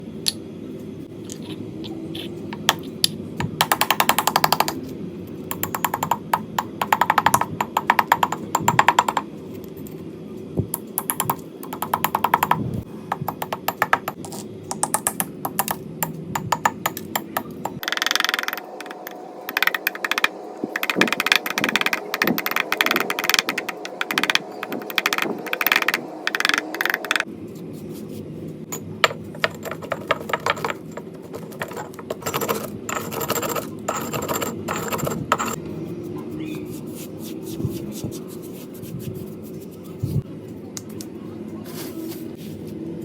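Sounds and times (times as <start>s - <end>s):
slate pencil and clay crunching: 36.7s - 40.2s.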